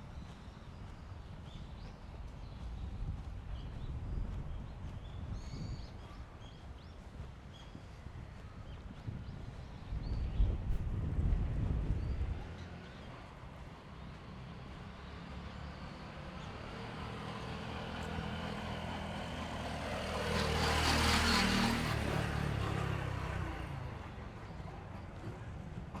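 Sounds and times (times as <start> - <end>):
road vehicle passing by: 10.9 - 26.0.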